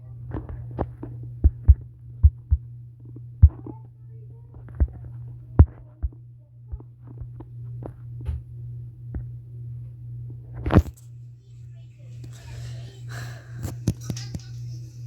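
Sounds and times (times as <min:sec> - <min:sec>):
steady low hum: 0:00.0 - 0:15.0
thumps and clicks: 0:00.3 - 0:03.8.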